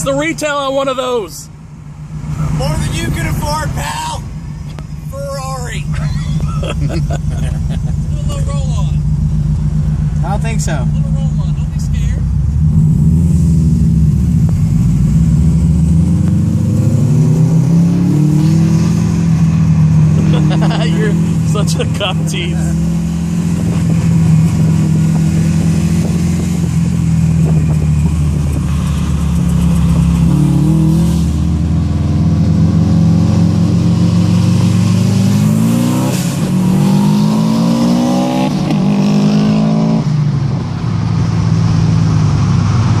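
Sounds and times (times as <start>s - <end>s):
car engine accelerating: 0.0s - 43.0s.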